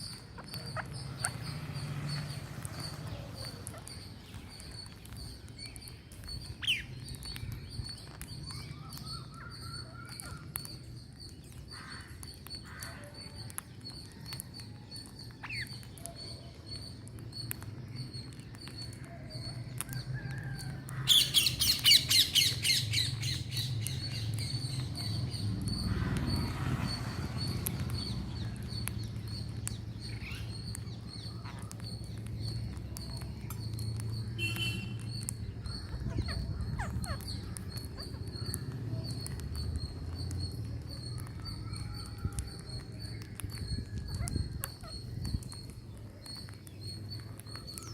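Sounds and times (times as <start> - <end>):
parrots calling and screeching: 0.0 - 5.6, 15.4 - 16.3, 19.0 - 34.2, 35.0 - 42.6, 43.2 - 47.9.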